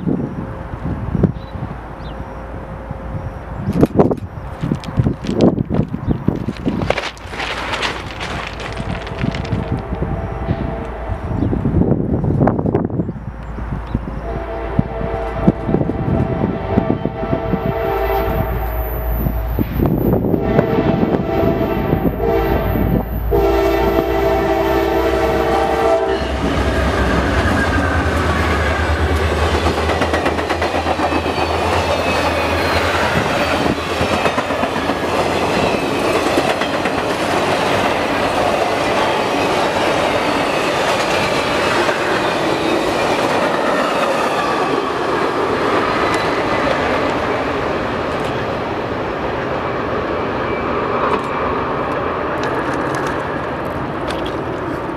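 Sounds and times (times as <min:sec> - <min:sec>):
diesel locomotive engine: 0:00.0 - 0:54.9
train wheels on rails: 0:03.4 - 0:54.9
locomotive horn chord: 0:09.1 - 0:11.4, 0:14.2 - 0:19.6, 0:20.3 - 0:28.0.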